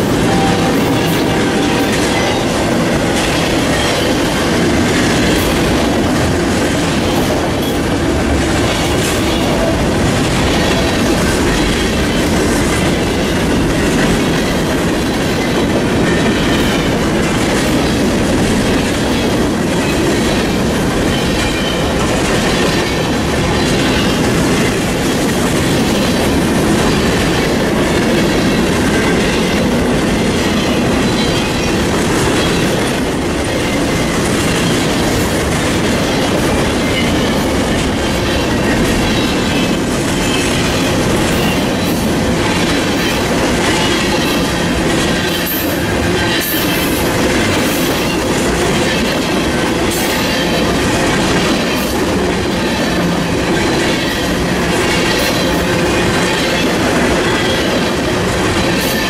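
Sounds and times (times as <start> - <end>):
freight train rumbling past: 0.0 - 59.0
train wheels squealing: 15.3 - 17.0, 19.0 - 35.2, 35.8 - 59.0.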